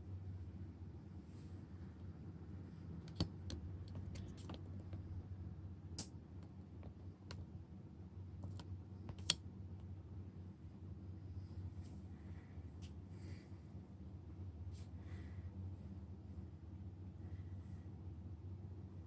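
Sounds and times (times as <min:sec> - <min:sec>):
low electrical hum: 0:00.0 - 0:19.0
small tool clicks and taps: 0:03.0 - 0:04.6, 0:08.4 - 0:09.4.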